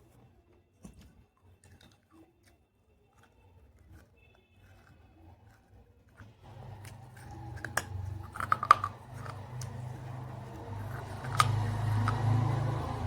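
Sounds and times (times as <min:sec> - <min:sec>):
clay pieces crunching: 0:04.6 - 0:13.0.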